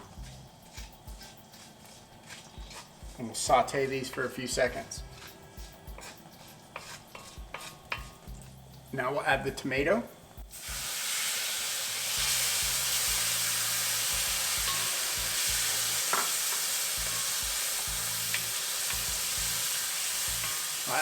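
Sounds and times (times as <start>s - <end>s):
tomatoes sizzling in hot fat: 0.0s - 21.0s
spoon knocking against pan: 5.6s - 8.3s, 14.2s - 19.6s.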